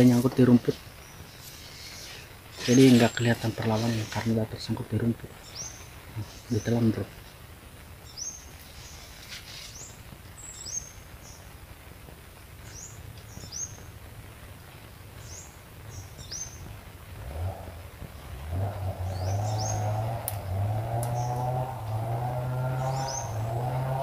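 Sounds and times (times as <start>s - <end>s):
bird chirping: 0.0s - 7.0s, 8.0s - 11.5s, 19.0s - 22.0s, 22.7s - 24.0s
low outdoor background: 0.0s - 24.0s.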